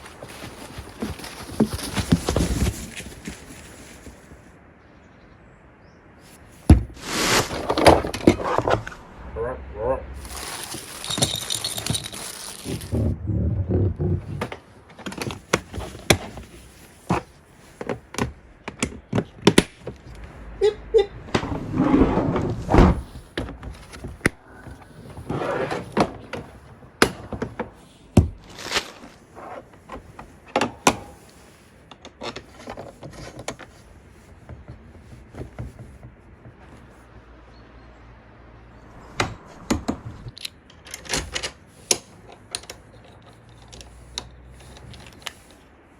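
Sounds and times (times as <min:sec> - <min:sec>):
packaging rustling: 0:00.0 - 0:04.5, 0:06.3 - 0:08.6, 0:10.2 - 0:13.1
clicks knocks and thuds: 0:06.6 - 0:08.9.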